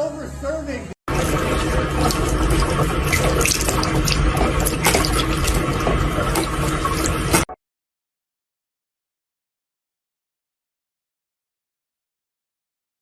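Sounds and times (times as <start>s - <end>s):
tap water splashing into sink: 1.1s - 7.5s.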